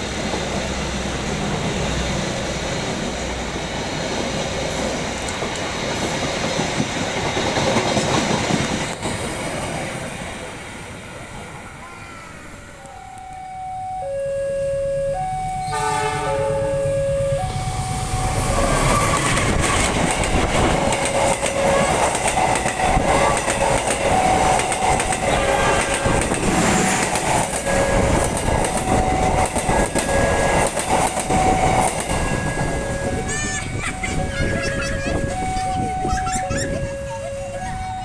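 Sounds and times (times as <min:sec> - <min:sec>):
train clattering over rail joints: 0:00.0 - 0:11.0, 0:18.0 - 0:36.1
two-tone alarm: 0:12.7 - 0:38.0
locomotive horn: 0:12.9 - 0:20.0, 0:20.6 - 0:23.4, 0:24.2 - 0:26.2, 0:27.4 - 0:33.3, 0:35.1 - 0:38.0.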